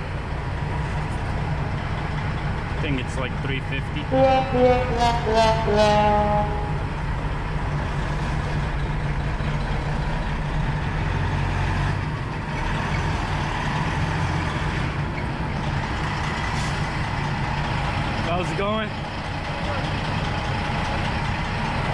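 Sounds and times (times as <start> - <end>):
truck diesel engine hum: 4.0 - 10.1.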